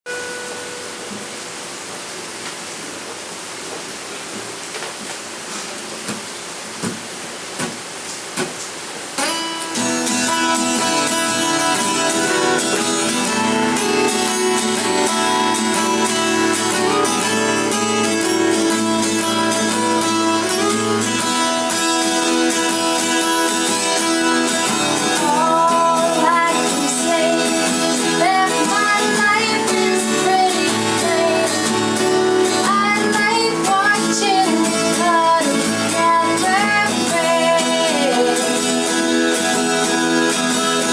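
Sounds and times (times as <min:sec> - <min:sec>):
acoustic guitar playing: 0:00.1 - 0:01.6, 0:09.2 - 0:40.9
rain falling: 0:00.1 - 0:40.9
person singing: 0:09.8 - 0:40.9.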